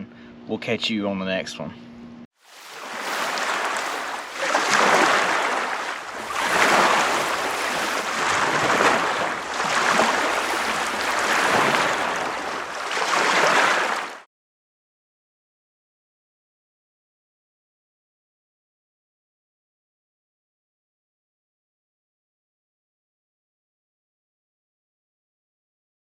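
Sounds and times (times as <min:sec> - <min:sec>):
ocean surf hissing: 0:02.4 - 0:14.2.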